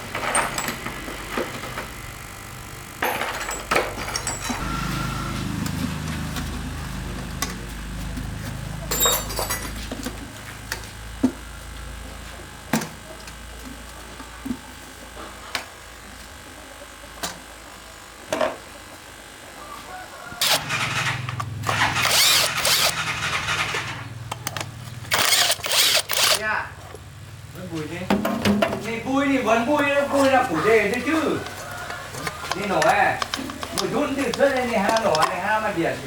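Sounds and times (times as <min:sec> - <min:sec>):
metallic clinks and knocks: 0:03.0 - 0:04.6, 0:08.9 - 0:09.8.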